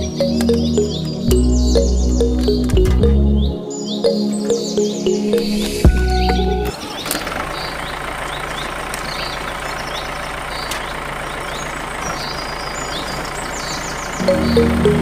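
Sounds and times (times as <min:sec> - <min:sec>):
background music: 0:00.0 - 0:06.7, 0:14.2 - 0:15.0
birds chirping faintly: 0:00.0 - 0:15.0
mini tractor motor running: 0:06.7 - 0:15.0.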